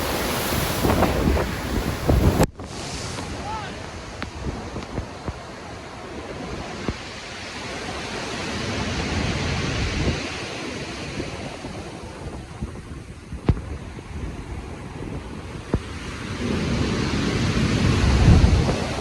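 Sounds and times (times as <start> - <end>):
ocean waves surging: 0.0 - 19.0
wind: 0.0 - 19.0.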